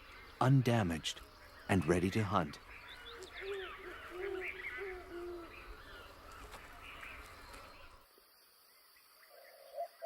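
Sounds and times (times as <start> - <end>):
low hooting bird calls: 1.2 - 8.0.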